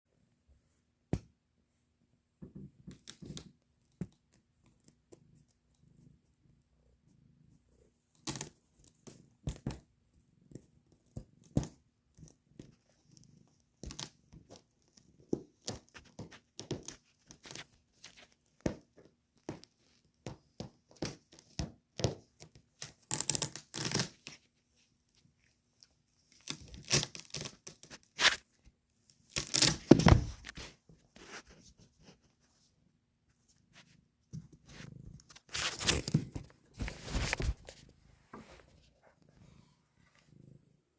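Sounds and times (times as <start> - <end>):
velcro ripping apart: 23.1 - 24.3, 29.3 - 30.0.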